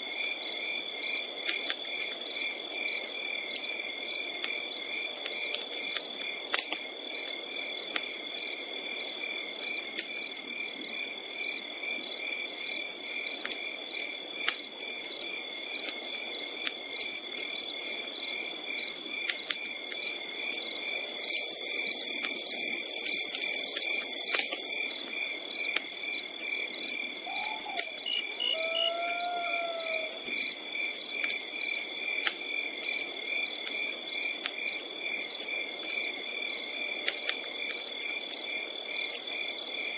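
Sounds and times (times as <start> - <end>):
campfire crackling: 0.0 - 39.9
crickets chirping: 0.0 - 39.9.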